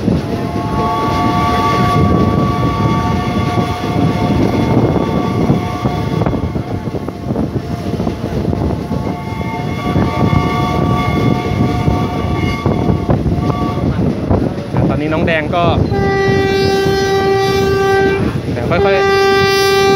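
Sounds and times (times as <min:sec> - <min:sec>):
train wheels rumbling on rails: 0:00.0 - 0:19.9
wind noise: 0:00.0 - 0:19.9
train whistle chord: 0:00.4 - 0:06.8, 0:09.1 - 0:13.9.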